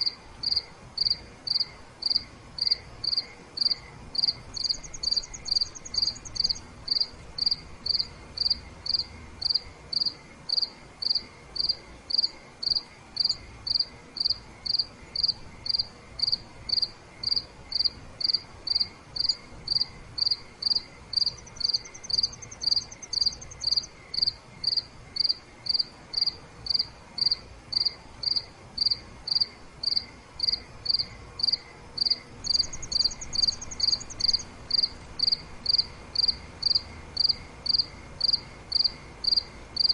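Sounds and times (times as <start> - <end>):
crickets chirping: 0.0 - 39.9
high insect trill: 0.0 - 39.9.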